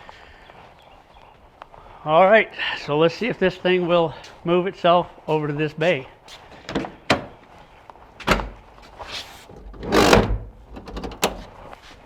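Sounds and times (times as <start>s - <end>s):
knocking and handling noise: 6.4s - 7.5s, 8.2s - 11.6s.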